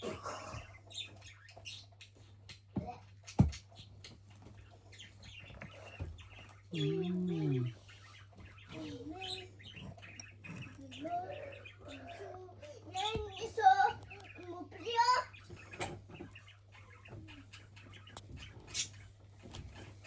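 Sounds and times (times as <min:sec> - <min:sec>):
person cooing: 0:06.8 - 0:07.8.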